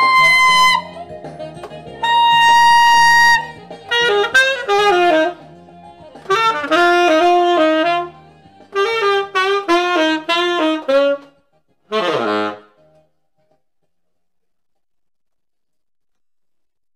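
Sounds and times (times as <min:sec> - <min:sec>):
tenor saxophone melody: 0:00.0 - 0:01.2, 0:01.9 - 0:13.1.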